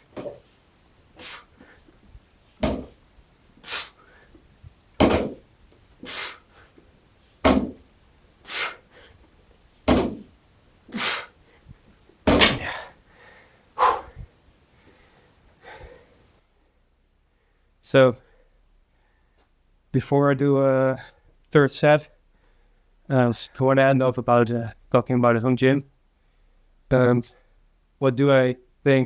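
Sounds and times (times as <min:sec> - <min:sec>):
sharp hissing inhales: 0:01.2 - 0:01.9, 0:03.6 - 0:04.4, 0:06.0 - 0:06.8, 0:08.4 - 0:09.2, 0:10.9 - 0:11.4, 0:12.6 - 0:14.3
man exhaling with grunts: 0:06.0 - 0:06.6, 0:10.9 - 0:11.3, 0:12.5 - 0:13.0, 0:13.8 - 0:14.3.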